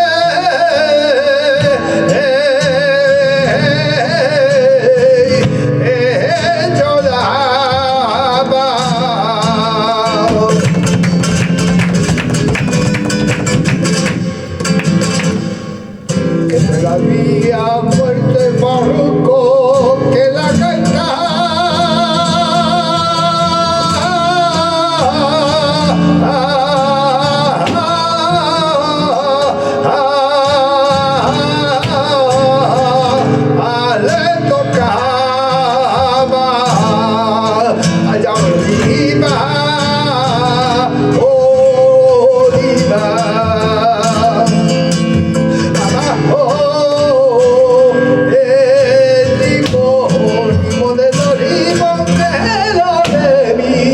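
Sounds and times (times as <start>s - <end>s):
flamenco guitar: 0.0s - 53.9s
person singing flamenco: 0.0s - 53.9s.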